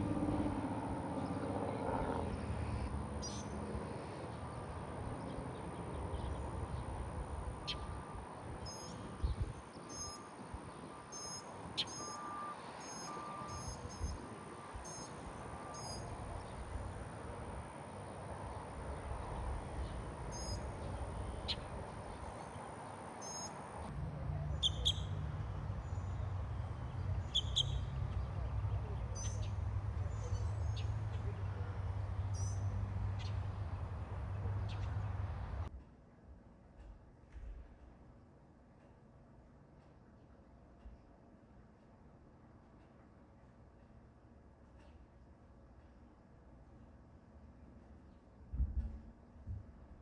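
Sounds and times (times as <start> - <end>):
birds chirping: 0.0 - 17.0, 18.1 - 35.7
steady low rumble: 23.8 - 35.8.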